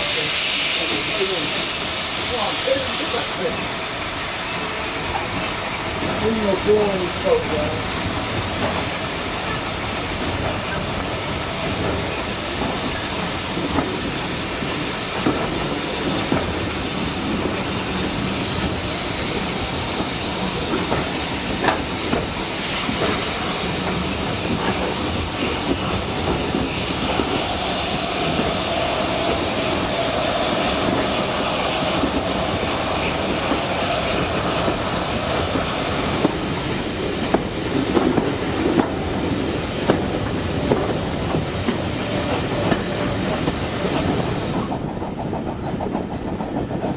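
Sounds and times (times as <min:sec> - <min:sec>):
train rumble and hiss: 0:00.0 - 0:46.9
wheels clickety-clack: 0:08.5 - 0:09.0, 0:10.2 - 0:29.8, 0:39.8 - 0:46.9.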